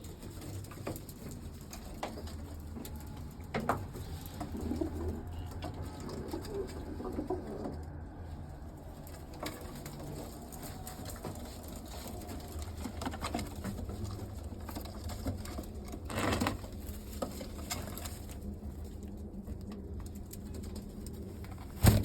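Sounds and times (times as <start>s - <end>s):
pigeons cooing: 0.0s - 13.6s
small clicks and scratches: 0.0s - 21.9s
pigeons scuffling: 0.0s - 22.0s.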